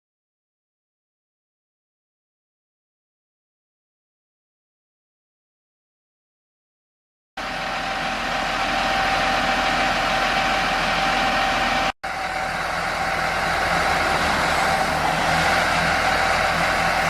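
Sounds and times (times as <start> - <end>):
vehicle engine and road noise: 7.4 - 17.0.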